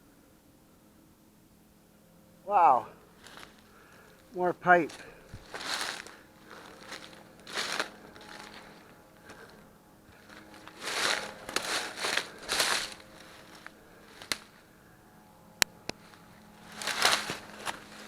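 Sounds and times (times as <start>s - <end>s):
footsteps through dry undergrowth: 3.0s - 18.0s
twigs snapping: 4.9s - 9.5s, 10.1s - 14.6s, 15.6s - 18.0s.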